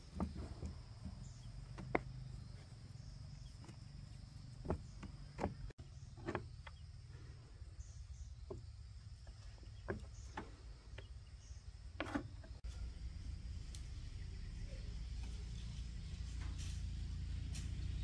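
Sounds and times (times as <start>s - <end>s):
sharp knocks and clicks: 0.0s - 2.3s, 4.6s - 6.8s.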